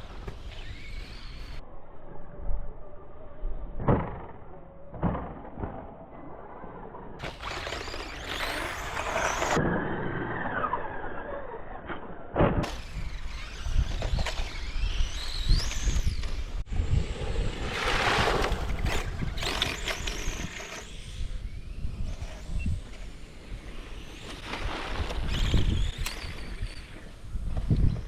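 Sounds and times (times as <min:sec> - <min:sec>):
electric motors whining: 0:07.2 - 0:11.4, 0:12.6 - 0:17.7, 0:18.4 - 0:27.4.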